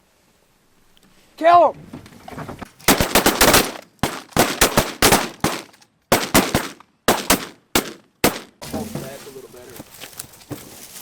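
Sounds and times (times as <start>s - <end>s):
shotgun fire: 2.9s - 8.6s.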